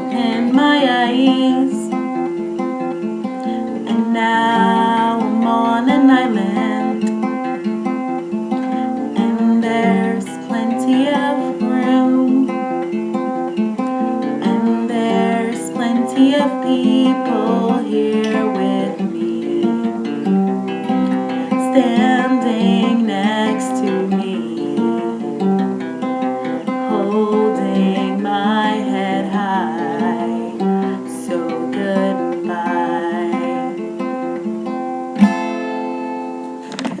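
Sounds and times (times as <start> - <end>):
acoustic guitar folk song: 0.0 - 37.0
wordless singing: 3.5 - 7.1, 8.7 - 12.5, 14.4 - 20.1, 21.5 - 25.1.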